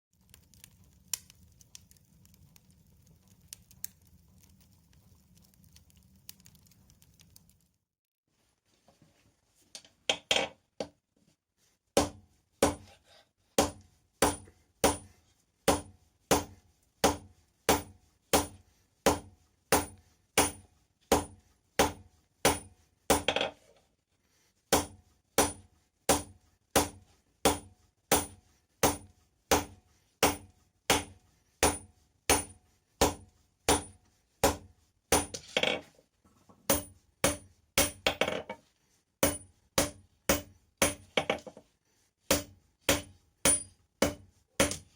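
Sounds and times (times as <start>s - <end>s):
hammer striking metal on anvil: 13.6s - 15.1s, 15.7s - 23.4s, 24.8s - 35.5s, 36.7s - 38.4s, 39.2s - 41.4s, 42.3s - 44.9s.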